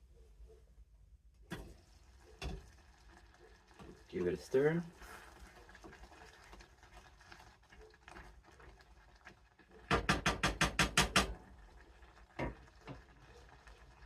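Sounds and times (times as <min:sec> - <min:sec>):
spoon stirring in a pot: 0:01.5 - 0:14.0
spoon knocking on pot: 0:09.9 - 0:11.4.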